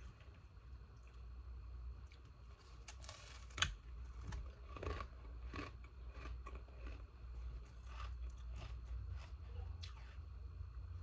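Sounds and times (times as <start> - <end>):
ice crunching as it is chewed: 2.1 - 10.2.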